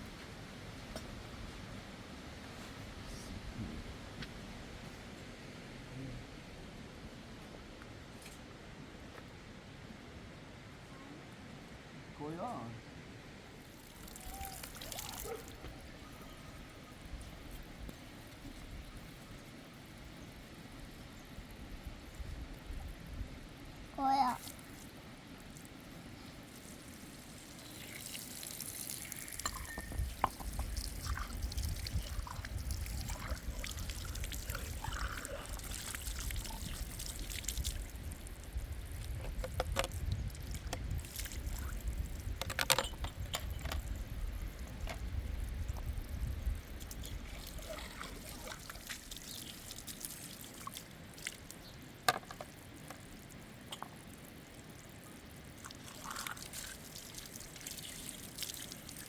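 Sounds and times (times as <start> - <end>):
water pouring and trickling: 13.5 - 59.0
water drips: 13.6 - 15.7, 26.5 - 59.0.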